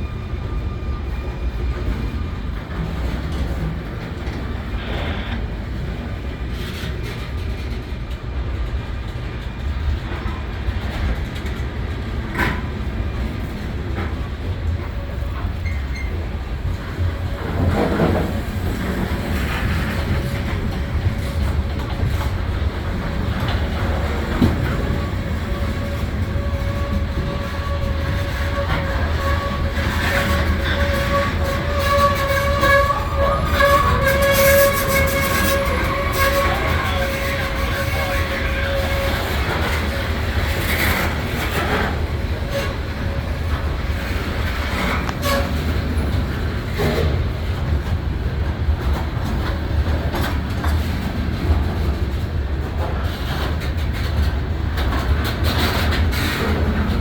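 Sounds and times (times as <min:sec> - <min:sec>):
diesel locomotive engine rumble: 0:00.0 - 0:57.0
rush of train noise: 0:00.0 - 0:57.0
train clank: 0:00.0 - 0:57.0
high wavering wheel squeal: 0:24.9 - 0:40.4.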